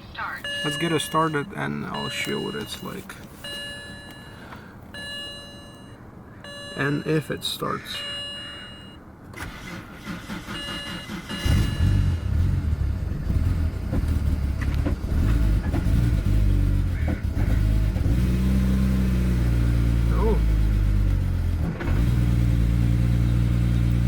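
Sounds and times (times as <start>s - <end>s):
engine running rough: 8.7s - 24.0s
engine starter cranking: 9.3s - 12.6s.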